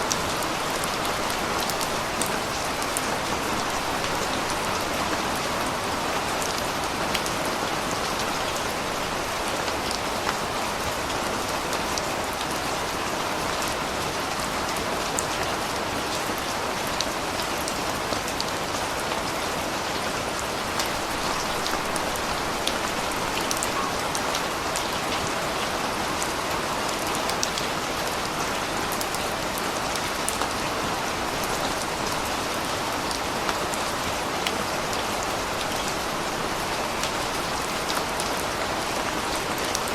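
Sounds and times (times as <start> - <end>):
raindrops ticking on surfaces: 0.0 - 39.9
steady rain falling: 0.0 - 39.9.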